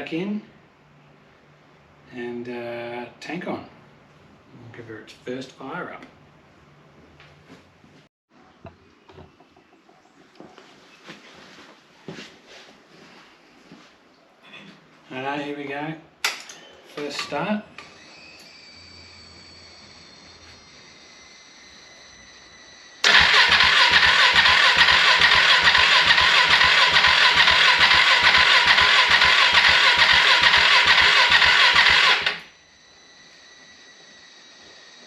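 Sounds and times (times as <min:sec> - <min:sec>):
starter cranking motorcycle engine: 0:23.0 - 0:32.5.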